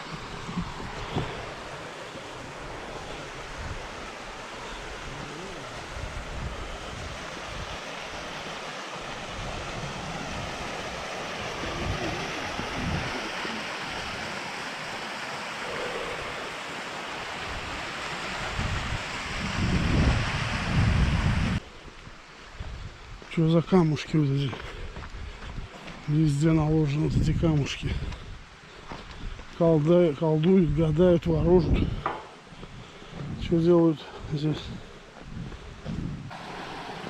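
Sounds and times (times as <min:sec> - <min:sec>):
wind buffeting microphone: 0:00.0 - 0:08.4, 0:09.1 - 0:14.2, 0:17.4 - 0:21.6, 0:30.5 - 0:33.6, 0:34.2 - 0:36.4
mountain stream rushing: 0:00.0 - 0:21.6, 0:36.3 - 0:37.0.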